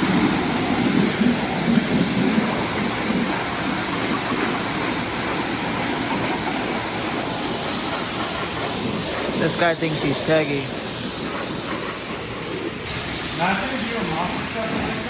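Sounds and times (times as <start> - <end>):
pressure washer spray hissing: 0.0 - 15.0.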